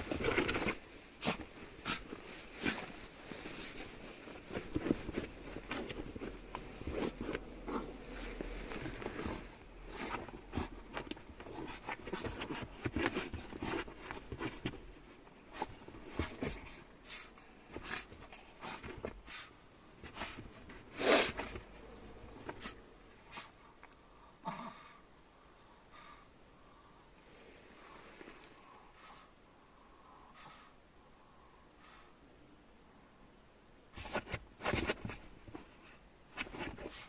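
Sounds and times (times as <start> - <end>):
small clicks and shuffles: 0.0 - 24.0, 33.9 - 37.0.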